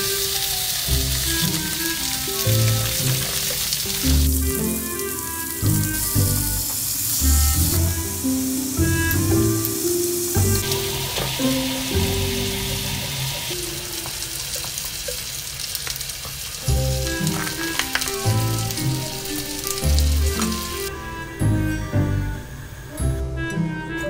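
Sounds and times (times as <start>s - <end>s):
meat and potatoes sizzling: 0.0s - 24.0s.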